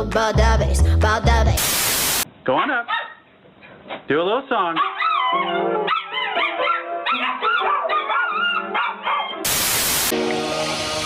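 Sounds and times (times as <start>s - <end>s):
dog howling: 4.8s - 9.4s.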